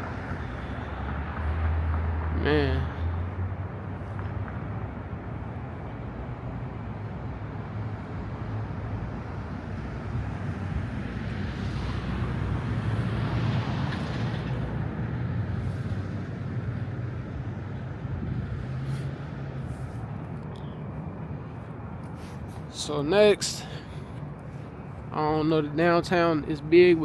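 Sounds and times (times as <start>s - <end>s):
vehicle passing: 0.0s - 5.1s, 7.4s - 20.4s
traffic rumble: 0.0s - 27.0s.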